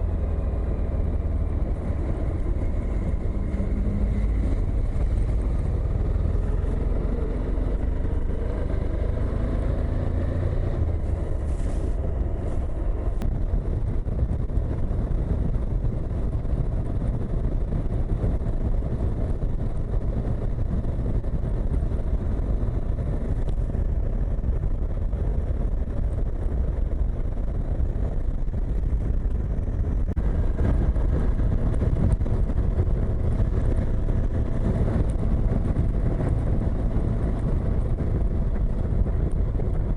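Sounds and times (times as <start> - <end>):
motorcycle engine rumble: 0.0 - 39.9
wind rushing across microphone: 0.0 - 39.9.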